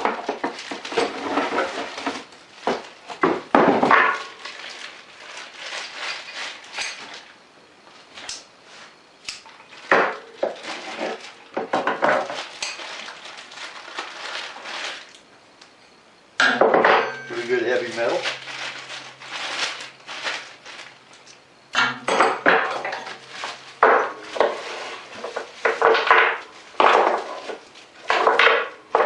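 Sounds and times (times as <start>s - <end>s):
hard pieces clattering and clinking: 0.0s - 7.3s
packaging rustling: 0.0s - 7.4s, 8.0s - 15.3s, 17.1s - 21.4s, 22.2s - 29.0s.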